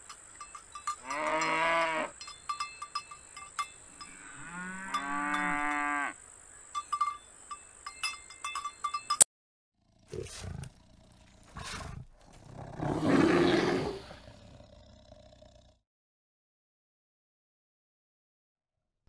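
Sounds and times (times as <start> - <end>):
cowbell clanking: 0.0 - 5.9, 6.8 - 9.3
cow mooing: 1.0 - 2.1, 3.9 - 6.2
bears grunting and growling: 10.0 - 15.8.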